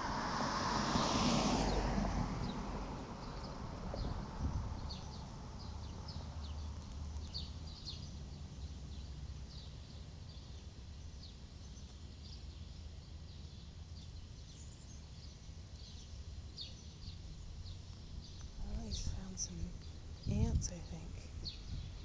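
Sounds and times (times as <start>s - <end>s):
birds chirping: 2.4s - 22.0s
steady low rumble: 17.1s - 22.0s.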